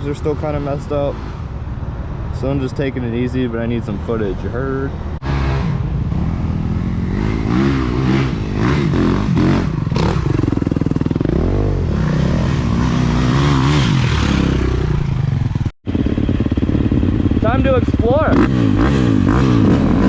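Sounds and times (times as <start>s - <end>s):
dirt bike engine revving: 5.2s - 20.0s.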